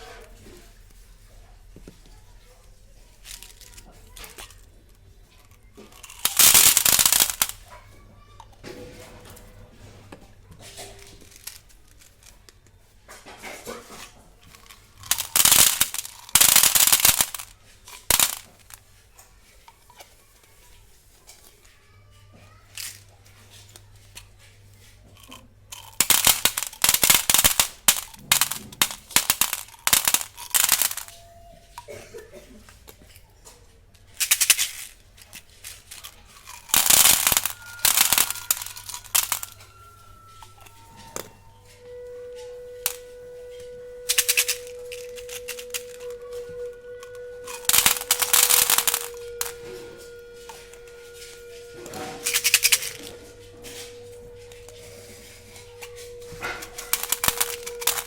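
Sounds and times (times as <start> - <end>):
candy wrappers crinkling and tearing: 2.6 - 8.6, 10.5 - 12.5, 13.8 - 21.6, 22.4 - 33.2, 34.1 - 58.0.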